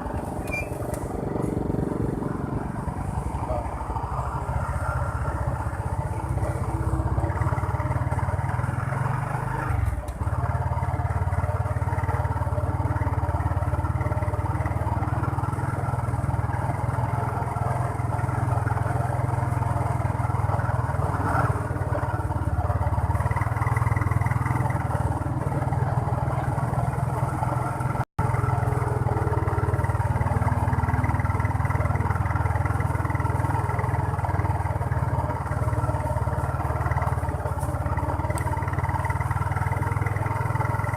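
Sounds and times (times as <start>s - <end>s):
motorcycle engine running: 0.0s - 40.9s
road noise: 0.0s - 40.9s.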